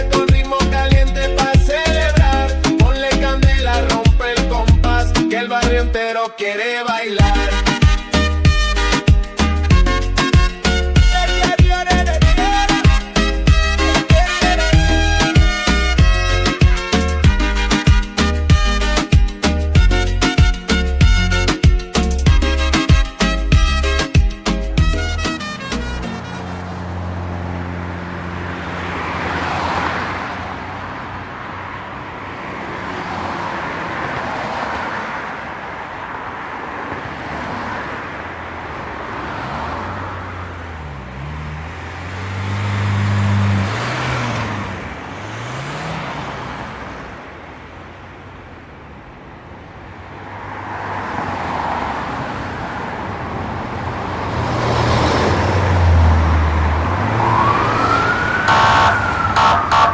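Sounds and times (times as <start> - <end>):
passing traffic: 0.0 - 59.9
car engine hum: 7.2 - 59.9.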